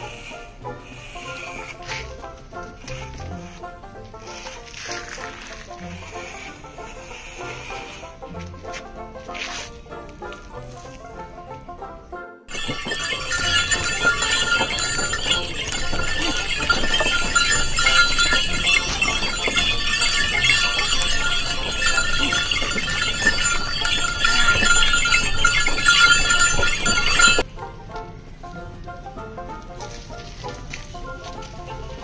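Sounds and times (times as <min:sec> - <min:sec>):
dense chorus of animal calls: 0:12.5 - 0:27.4.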